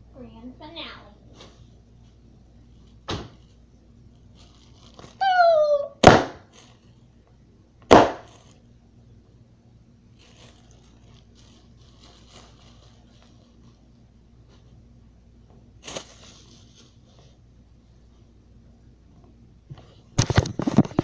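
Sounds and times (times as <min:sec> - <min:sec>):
bottle rocket pop: 0:06.0 - 0:06.5
loud firework bangs: 0:06.0 - 0:06.5, 0:07.9 - 0:08.4.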